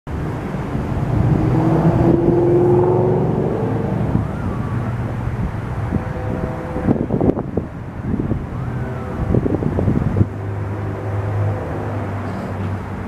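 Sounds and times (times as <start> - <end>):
train horn chord: 5.8 - 7.4, 10.6 - 12.2.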